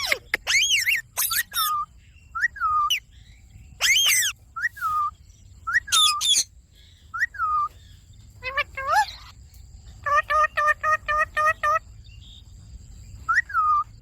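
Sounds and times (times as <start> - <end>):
parakeet screeches: 0.0 - 1.8, 3.8 - 4.3, 5.9 - 6.5, 8.4 - 9.3
parakeet calling: 0.0 - 9.4, 10.0 - 12.4, 13.2 - 13.9.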